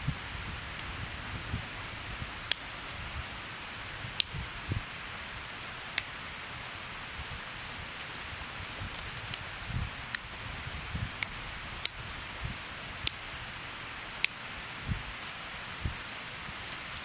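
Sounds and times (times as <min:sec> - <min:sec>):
twig fire crackling: 0:00.0 - 0:17.0.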